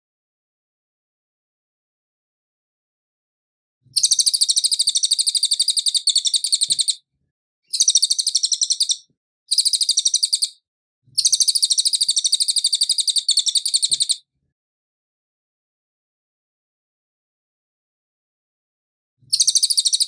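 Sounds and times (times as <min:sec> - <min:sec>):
bird singing rapid high notes: 0:07.7 - 0:10.6, 0:11.2 - 0:14.2, 0:19.3 - 0:20.0.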